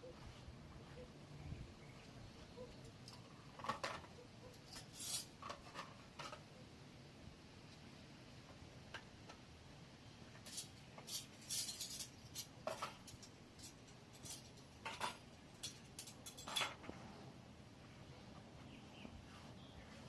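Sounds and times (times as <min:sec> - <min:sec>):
utensils clinking on dishes: 0:10.5 - 0:16.9.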